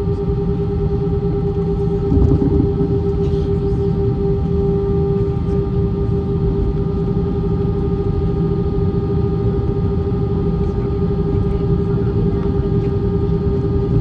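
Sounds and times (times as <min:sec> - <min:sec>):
airliner cabin engine drone: 0:00.0 - 0:14.0.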